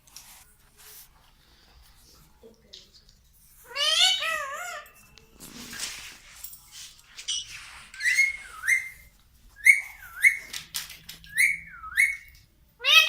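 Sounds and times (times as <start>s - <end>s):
parrot whistling high notes: 8.0s - 10.5s, 11.3s - 13.0s.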